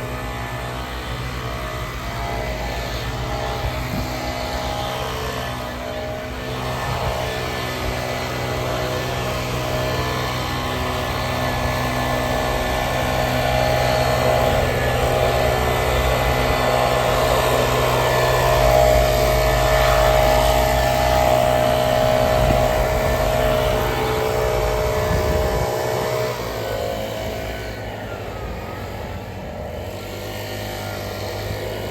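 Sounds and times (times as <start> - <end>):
leaf blower running: 0.0 - 31.9.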